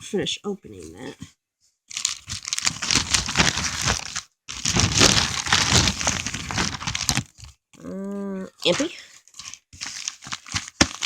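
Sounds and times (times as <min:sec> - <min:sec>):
packaging crinkling and tearing: 0:01.9 - 0:07.6, 0:08.6 - 0:11.0.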